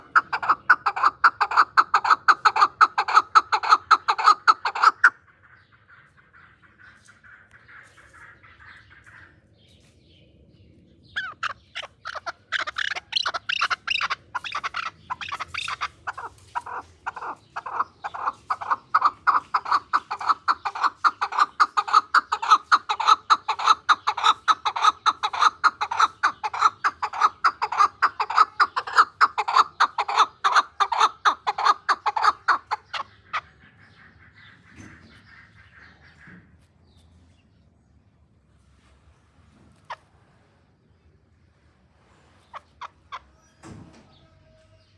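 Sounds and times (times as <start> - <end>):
partridge clucking call: 0.0 - 5.2, 11.2 - 33.5.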